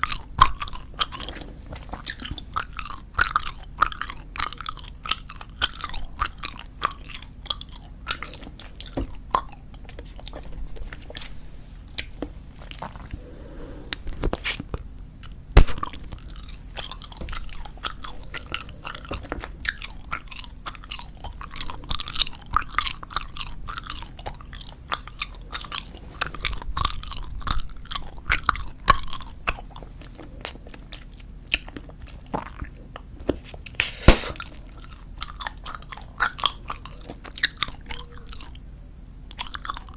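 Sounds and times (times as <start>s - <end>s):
chewing bubblegum: 0.0s - 13.3s, 13.9s - 39.9s
gum snaps: 14.2s - 18.0s, 33.7s - 38.2s.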